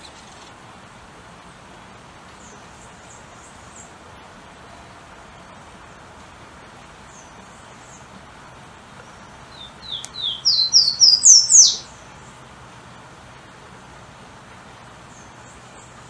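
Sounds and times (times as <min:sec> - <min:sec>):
light steady hiss: 0:00.0 - 0:16.0
bird whistling song: 0:09.5 - 0:11.9.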